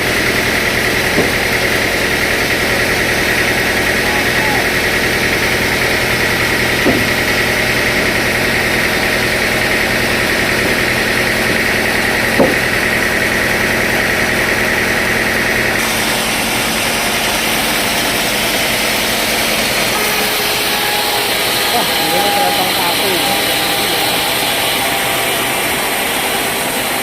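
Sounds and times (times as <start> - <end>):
sawmill machinery running: 0.0 - 27.0
short knocks: 0.9 - 13.6.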